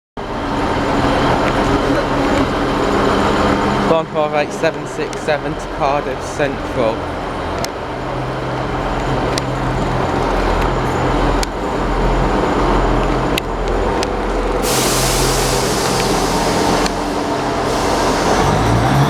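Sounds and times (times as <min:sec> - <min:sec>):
train diesel engines droning: 0:00.2 - 0:19.0
loud hiss: 0:14.6 - 0:19.0.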